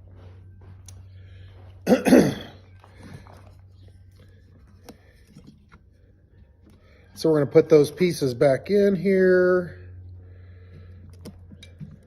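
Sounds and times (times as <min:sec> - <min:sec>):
steady low hum: 0:00.0 - 0:12.0
man coughing: 0:01.8 - 0:02.6.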